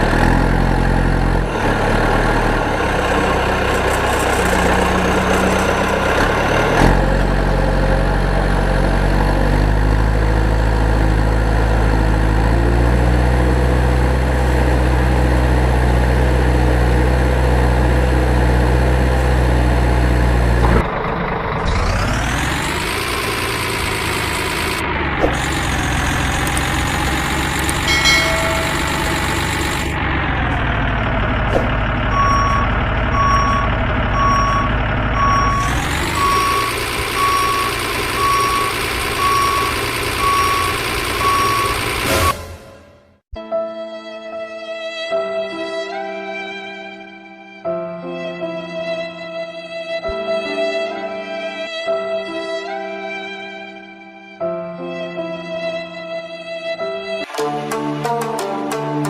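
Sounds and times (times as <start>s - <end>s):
vehicle engine idling: 0.0s - 12.4s, 16.6s - 42.4s
engine revving up: 0.0s - 42.6s.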